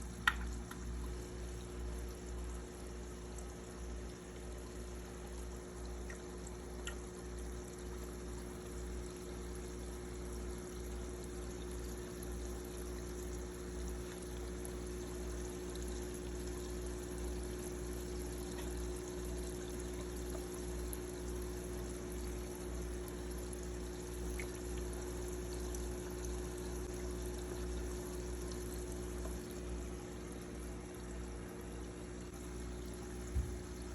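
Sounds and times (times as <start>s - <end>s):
low pump hum: 0.0s - 33.9s.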